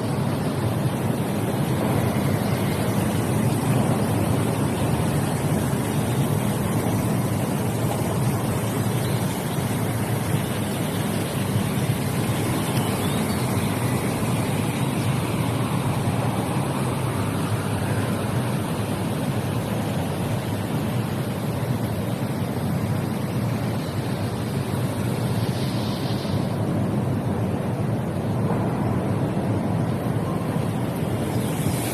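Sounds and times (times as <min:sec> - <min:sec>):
running water rushing: 0:00.0 - 0:31.9.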